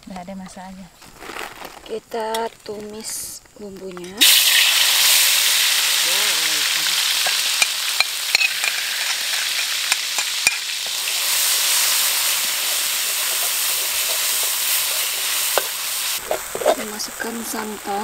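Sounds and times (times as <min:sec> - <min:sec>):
paste sizzling in hot oil: 0:04.1 - 0:18.0
utensils clinking against wok: 0:07.2 - 0:16.9.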